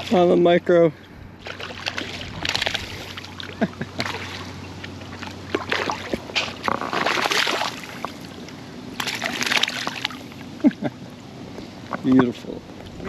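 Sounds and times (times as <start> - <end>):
water splashing: 1.4 - 10.5.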